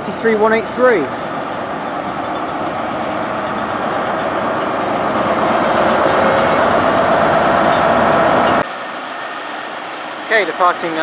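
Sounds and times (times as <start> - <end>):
locomotive diesel engine running: 0.0 - 11.0
humming tone: 1.5 - 8.6.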